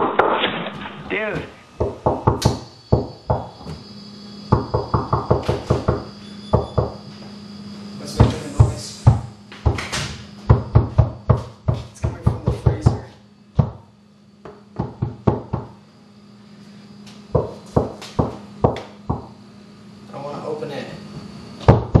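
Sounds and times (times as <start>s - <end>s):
faint steady hum: 0.0s - 22.0s
rapid knocking on a freezer: 1.3s - 3.8s, 4.5s - 7.0s, 8.2s - 15.8s, 17.3s - 19.4s, 21.6s - 22.0s.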